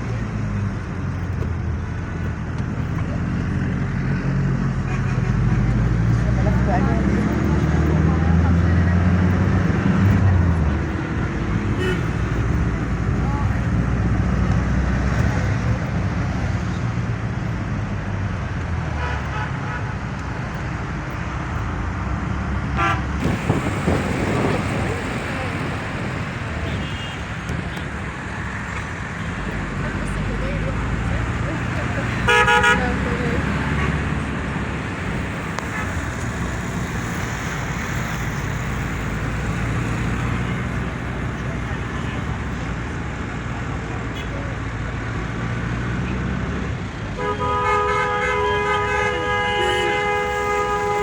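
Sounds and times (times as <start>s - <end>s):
road traffic rumble: 0.0s - 51.0s
car horn toots: 32.3s - 33.0s, 47.2s - 51.0s.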